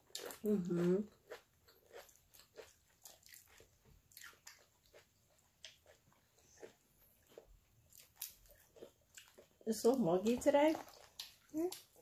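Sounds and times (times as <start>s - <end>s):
faint chewing: 0.0s - 12.0s.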